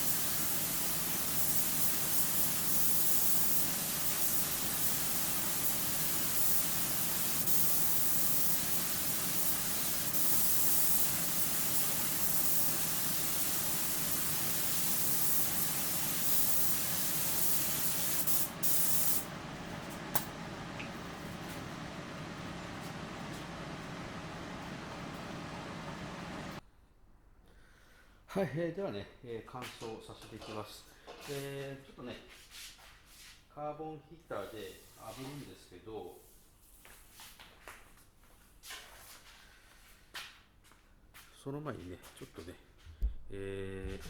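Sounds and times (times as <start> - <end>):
paint spray gun hissing: 0.0 - 26.6.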